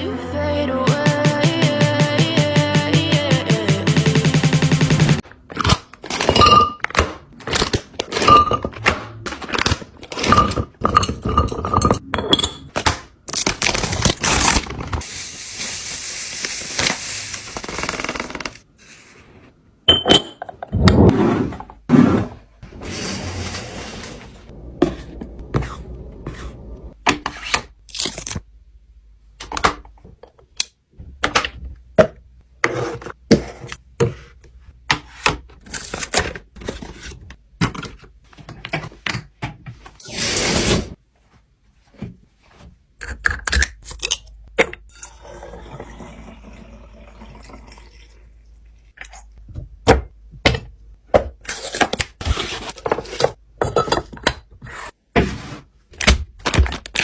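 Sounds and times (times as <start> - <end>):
containers knocking and clattering: 5.5 - 12.8.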